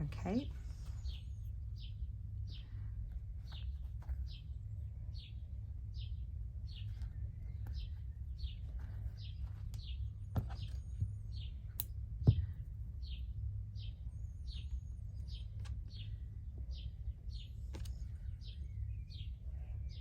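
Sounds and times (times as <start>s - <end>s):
bird chirping: 0.0s - 20.0s
low steady hum: 0.0s - 20.0s.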